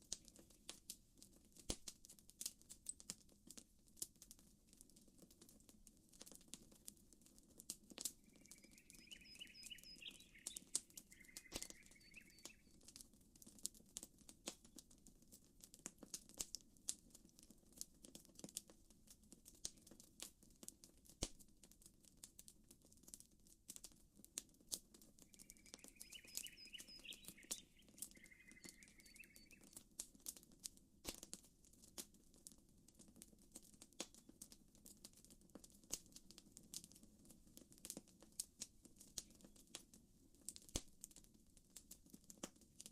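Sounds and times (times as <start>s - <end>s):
campfire crackling and popping: 0.0s - 42.9s
bird chirping: 8.2s - 12.8s, 25.3s - 29.8s.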